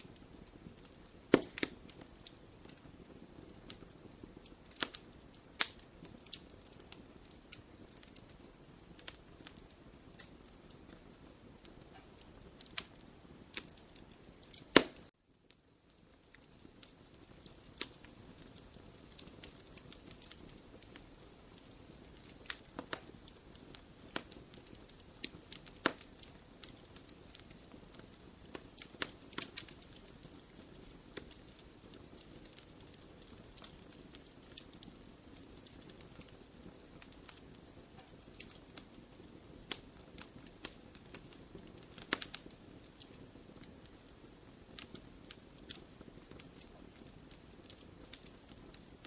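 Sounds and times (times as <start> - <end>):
fire hiss: 0.0 - 15.1
wood fire crackling and popping: 0.0 - 49.0.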